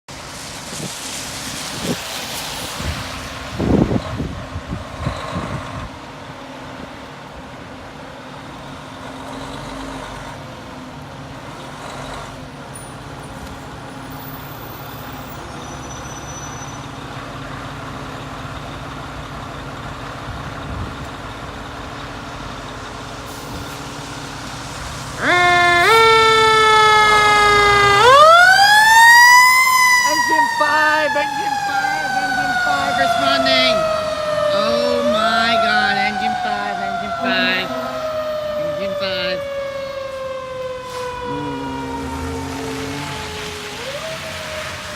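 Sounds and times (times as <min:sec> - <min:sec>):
fire engine humming: 0:00.1 - 0:44.9
fire engine siren wailing: 0:22.5 - 0:44.9.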